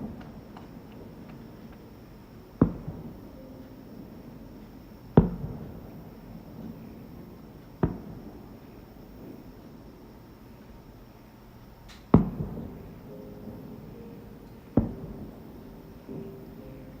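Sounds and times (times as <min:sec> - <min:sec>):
fireworks bangs with echo: 0:02.6 - 0:03.4, 0:05.1 - 0:09.4, 0:12.1 - 0:13.6, 0:14.7 - 0:16.6.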